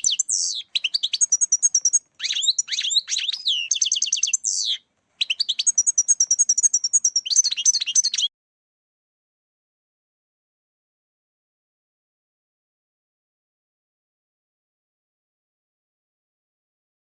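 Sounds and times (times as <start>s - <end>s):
goldfinch singing: 0.0s - 8.3s.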